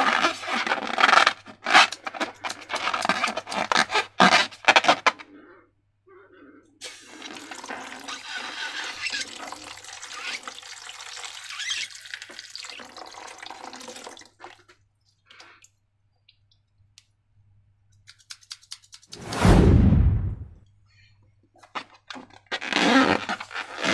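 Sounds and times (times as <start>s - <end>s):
liquid pouring: 6.8s - 14.8s.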